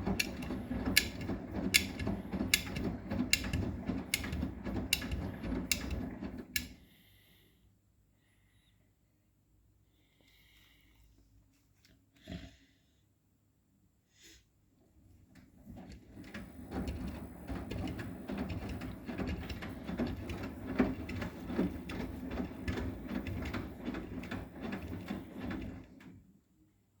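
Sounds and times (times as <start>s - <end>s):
washing machine drum rumbling: 0.0s - 6.6s, 16.0s - 26.1s.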